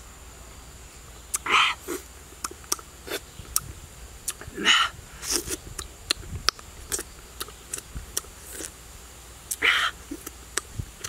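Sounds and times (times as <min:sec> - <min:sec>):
wet lip smacks and chewing: 0:01.3 - 0:04.5, 0:05.2 - 0:08.7.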